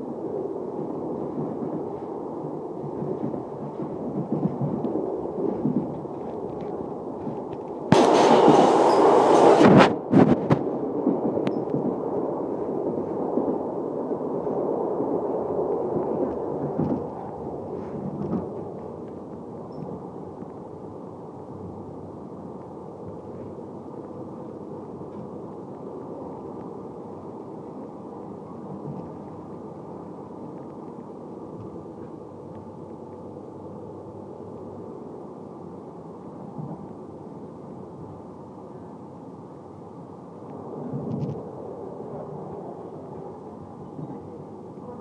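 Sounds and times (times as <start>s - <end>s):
train wheels rumbling on rails: 0.0s - 39.2s, 40.5s - 45.0s
loud rushing blast: 7.9s - 11.0s.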